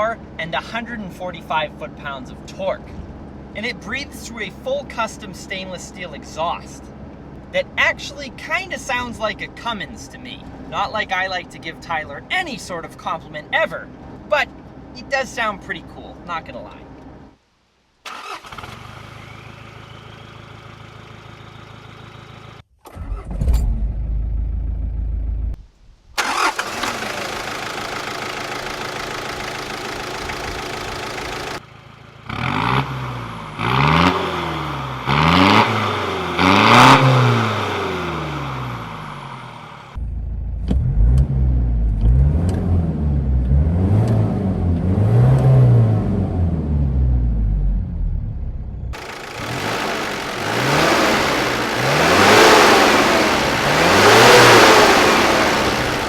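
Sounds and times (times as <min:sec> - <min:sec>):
diesel engine revving: 0:26.2 - 0:31.6, 0:32.2 - 0:56.0.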